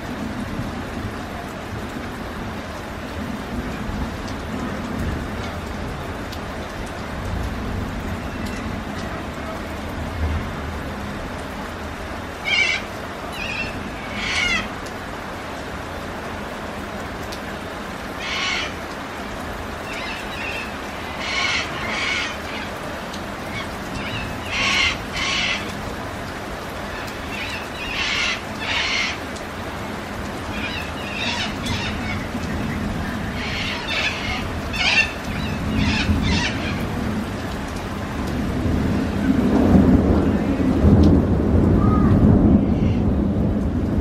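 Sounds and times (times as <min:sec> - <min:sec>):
rain hissing: 0:00.0 - 0:44.0
bird calls: 0:12.4 - 0:14.7, 0:19.9 - 0:22.8, 0:23.5 - 0:25.7, 0:26.9 - 0:29.2, 0:30.5 - 0:36.9.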